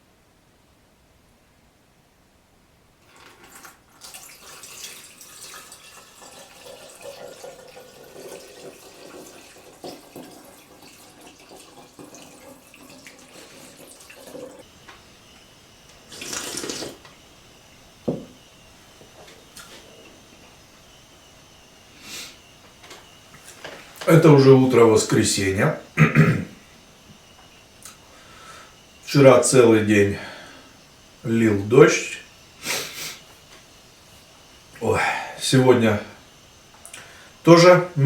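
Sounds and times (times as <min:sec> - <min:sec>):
running water splashing: 0:03.1 - 0:14.7, 0:16.0 - 0:17.1.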